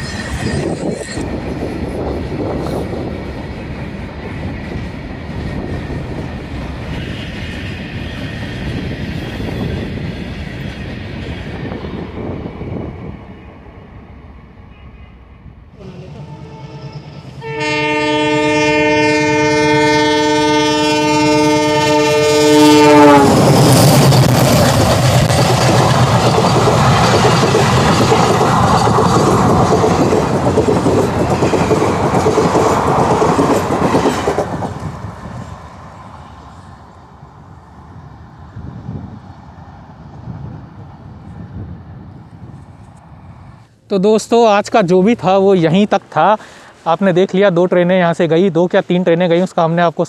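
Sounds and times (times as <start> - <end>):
train coaches rumbling over rails: 0.0 - 50.0
train horn: 15.8 - 23.6.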